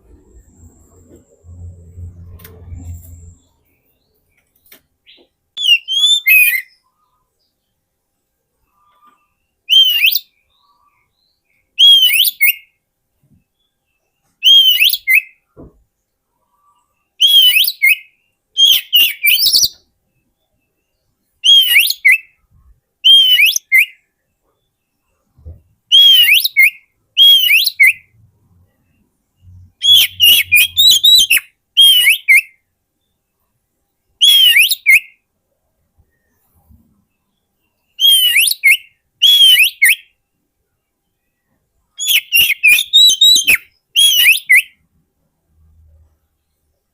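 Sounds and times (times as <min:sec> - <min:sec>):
bird singing whistled phrases: 0:05.6 - 0:06.8, 0:09.7 - 0:10.9, 0:11.8 - 0:12.7, 0:14.4 - 0:15.4, 0:17.2 - 0:19.8, 0:21.4 - 0:22.4, 0:23.0 - 0:24.0, 0:25.9 - 0:28.1, 0:29.5 - 0:32.6, 0:34.2 - 0:35.2, 0:38.0 - 0:40.2, 0:42.0 - 0:44.8.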